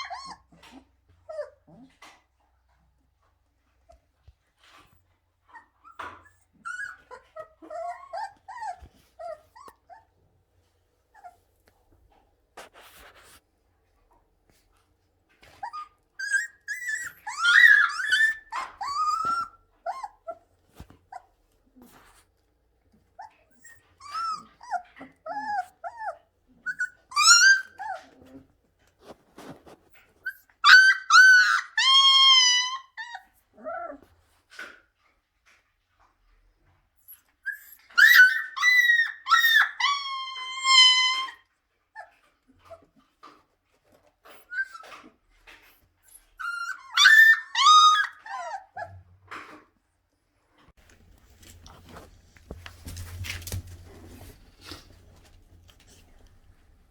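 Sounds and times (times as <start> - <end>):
puppies whimpering and yipping: 0.0 - 1.9, 5.5 - 10.1, 15.5 - 21.4, 23.2 - 34.1, 37.2 - 42.9, 44.2 - 49.2.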